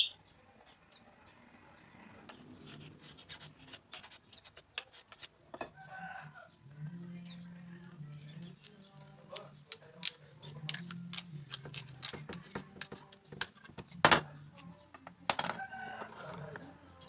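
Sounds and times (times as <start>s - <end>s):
hand tools clicking on bamboo: 9.7s - 13.9s.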